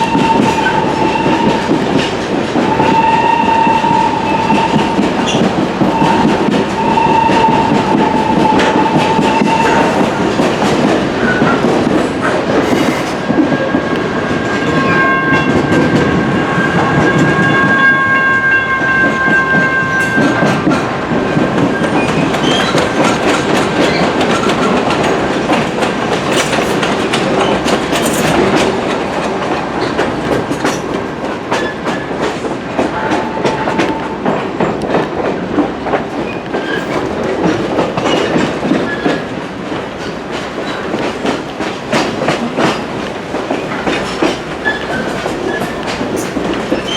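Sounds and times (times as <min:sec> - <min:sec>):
train wheels rumbling on rails: 0:00.0 - 0:46.9
train horn: 0:02.6 - 0:11.0, 0:12.5 - 0:20.6, 0:32.8 - 0:34.4
high squeal: 0:08.1 - 0:11.4, 0:12.6 - 0:13.3.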